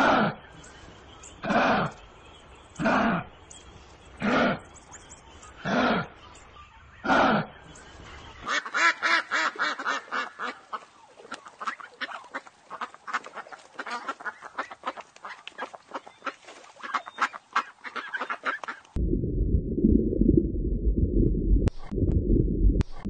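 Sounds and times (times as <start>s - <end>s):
ducks quacking: 2.8s - 3.4s, 4.2s - 19.0s.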